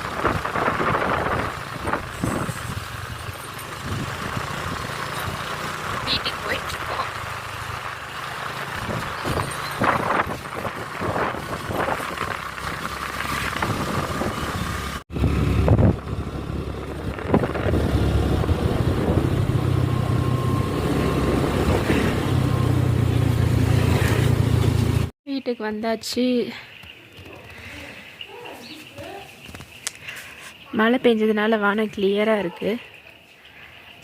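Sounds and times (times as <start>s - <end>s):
vehicle engine and road noise: 0.0s - 25.2s.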